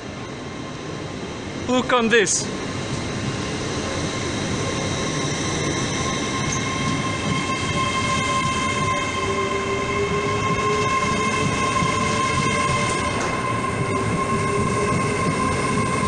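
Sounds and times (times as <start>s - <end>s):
train rumble: 0.0s - 16.0s
high-pitched wheel squeal: 5.0s - 16.0s.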